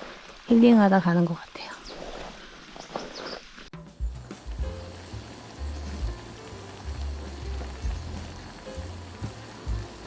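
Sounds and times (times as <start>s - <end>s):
small stream trickling: 4.3s - 10.0s.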